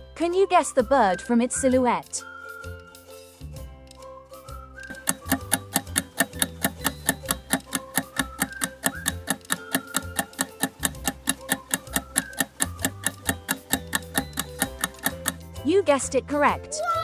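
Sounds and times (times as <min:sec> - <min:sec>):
clock-like ticking: 0:04.9 - 0:15.6
bouncy bass line: 0:04.9 - 0:16.6.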